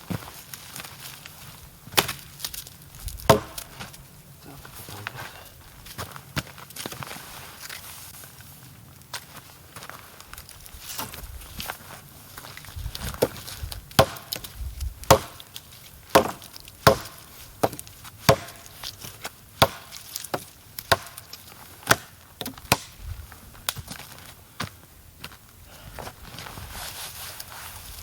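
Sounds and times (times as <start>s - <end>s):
axe chopping firewood: 2.0s - 2.2s, 3.2s - 3.9s, 13.2s - 23.0s.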